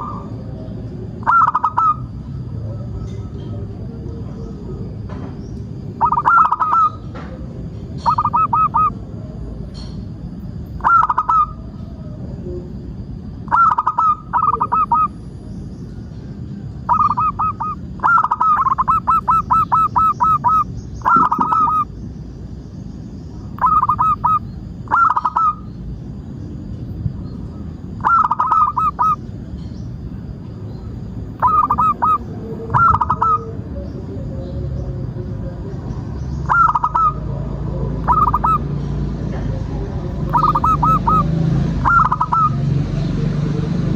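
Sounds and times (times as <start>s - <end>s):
dove cooing: 0.0s - 5.2s, 5.8s - 9.4s, 10.8s - 12.6s, 13.5s - 15.1s, 16.8s - 21.9s, 23.5s - 25.7s, 27.5s - 29.3s, 31.3s - 35.8s, 36.4s - 38.7s, 39.3s - 42.7s
low background noise: 0.0s - 43.9s.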